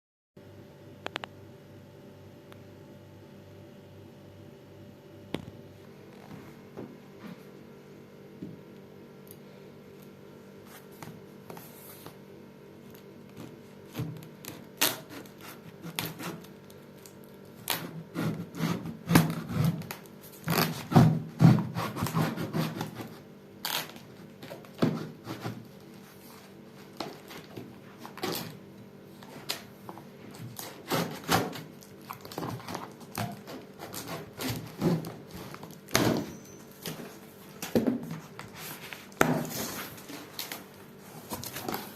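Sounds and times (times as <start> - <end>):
cardboard packaging scraping: 29.2 - 41.9.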